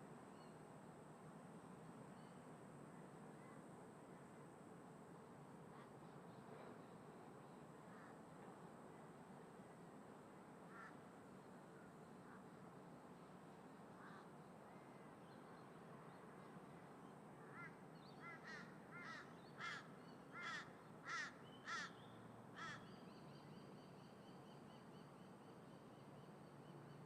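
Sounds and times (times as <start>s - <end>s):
faint background noise: 0.0s - 27.0s
crow cawing: 17.5s - 22.0s, 22.6s - 22.9s.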